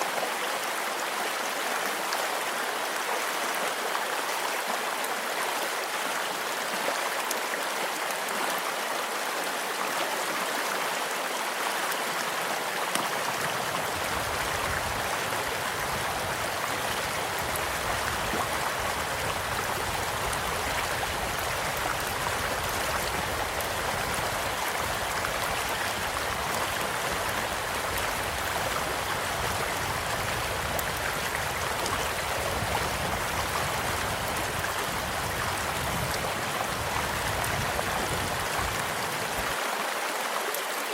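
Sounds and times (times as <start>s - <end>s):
stream rushing: 0.0s - 40.9s
faint campfire crackles: 13.0s - 39.6s.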